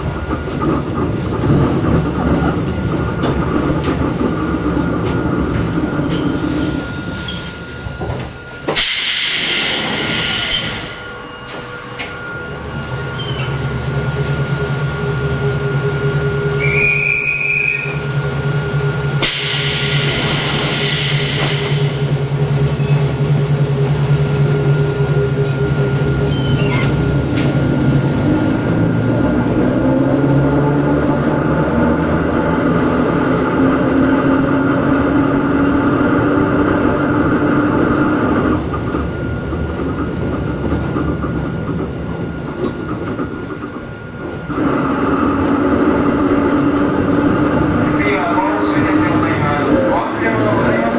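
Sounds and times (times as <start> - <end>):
train motor and gear hum: 0.0 - 50.9
wheel squeal: 3.8 - 8.3, 9.7 - 13.6, 16.6 - 18.1, 22.7 - 23.1, 24.2 - 27.9.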